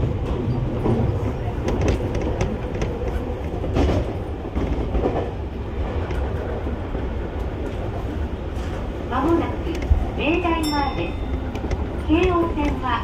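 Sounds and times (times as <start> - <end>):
clacks at rail joints: 0.0 - 6.6, 8.5 - 10.1, 10.8 - 13.0
train wheels rumbling: 0.0 - 13.0.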